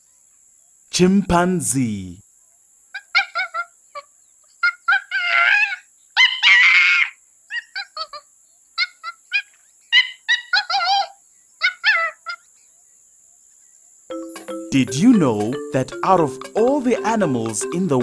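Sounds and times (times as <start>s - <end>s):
chimpanzee wavering screams: 3.0s - 12.5s.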